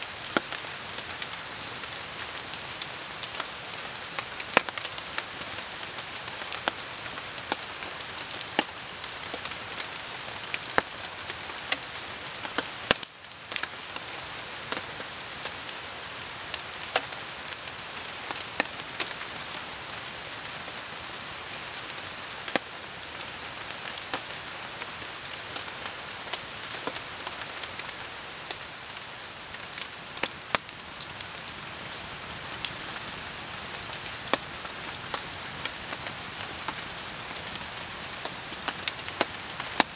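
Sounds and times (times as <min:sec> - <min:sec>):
rain on forest and tarp: 0:00.0 - 0:39.9
campfire crackling: 0:00.1 - 0:39.9
river flowing: 0:26.1 - 0:39.9.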